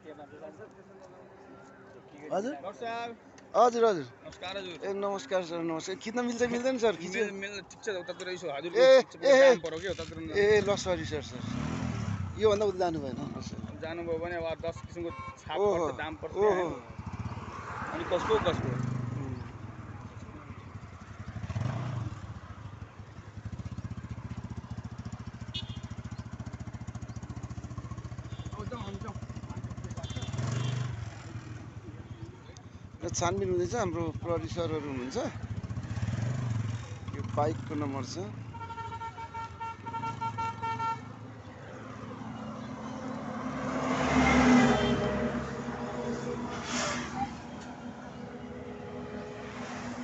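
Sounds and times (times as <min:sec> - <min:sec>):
vehicle passing on highway: 0:10.1 - 0:13.8, 0:16.6 - 0:25.4, 0:34.7 - 0:37.7, 0:39.8 - 0:50.0
vehicle horn toots: 0:14.7 - 0:15.7, 0:25.4 - 0:26.1, 0:28.2 - 0:29.1, 0:29.9 - 0:31.0, 0:38.5 - 0:41.2, 0:44.2 - 0:45.4
motorcycle engine idling: 0:19.6 - 0:34.7.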